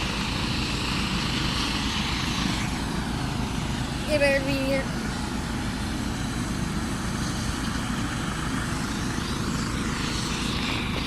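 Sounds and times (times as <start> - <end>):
helicopter engine and rotor: 0.0 - 11.0.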